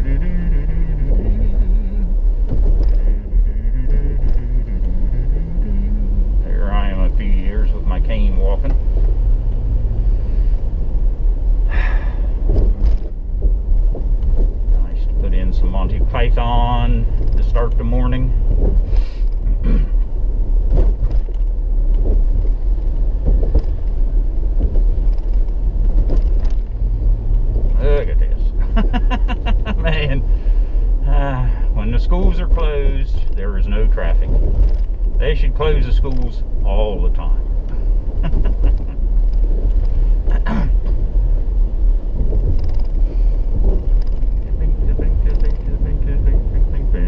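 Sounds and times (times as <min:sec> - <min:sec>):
car road noise from inside: 0:00.0 - 0:47.0.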